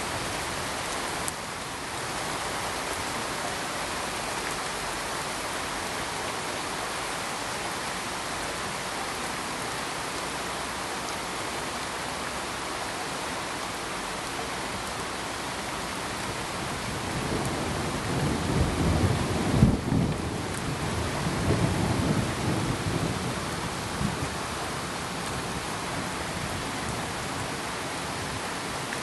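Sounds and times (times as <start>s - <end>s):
pink noise hiss: 0.0s - 29.0s.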